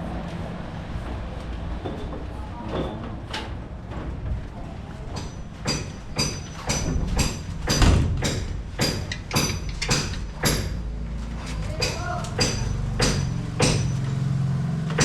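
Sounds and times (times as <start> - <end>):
hammer striking nails: 5.2 - 10.9, 11.7 - 14.2.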